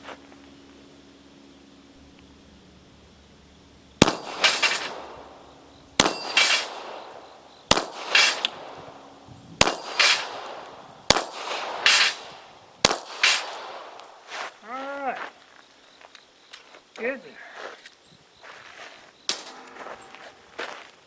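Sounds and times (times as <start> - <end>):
pistol shots: 4.0 - 14.2, 19.3 - 20.2
bullet clanging on steel plate: 4.1 - 5.3, 6.0 - 7.4, 9.6 - 11.1, 19.3 - 20.2.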